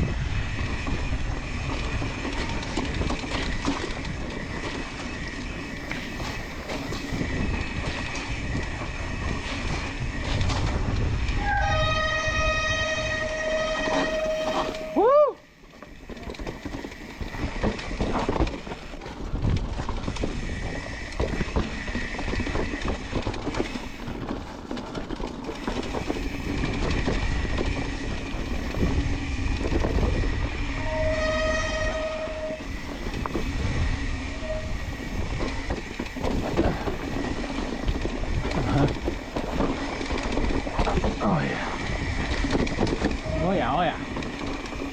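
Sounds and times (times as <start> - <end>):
bike tyres rumbling on trail: 0.0 - 44.9
rattles and knocks from bumps: 0.6 - 11.4, 15.8 - 30.6, 35.1 - 43.4.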